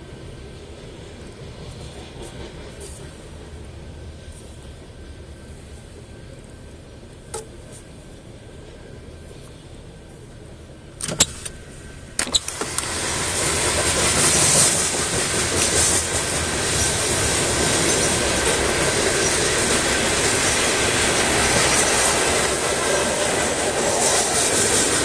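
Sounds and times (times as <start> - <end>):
freight train rolling past: 0.0 - 25.0
sharp clicks: 11.0 - 11.6, 12.2 - 13.0.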